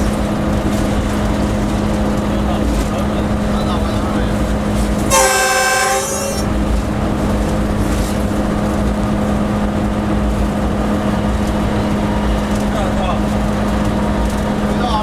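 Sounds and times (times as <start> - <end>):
locomotive running hum and rumble: 0.0 - 15.0
train horn: 5.0 - 6.8.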